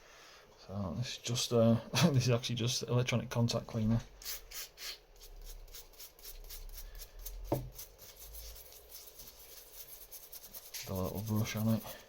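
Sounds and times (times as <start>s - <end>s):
brush scrubbing metal part: 4.2s - 12.0s.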